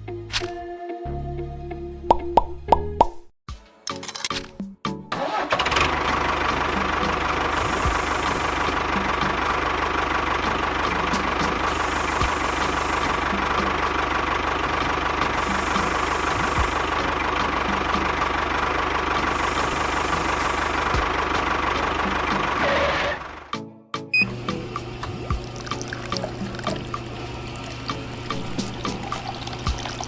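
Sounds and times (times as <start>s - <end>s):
engine running steadily: 5.3s - 23.5s, 24.2s - 30.0s.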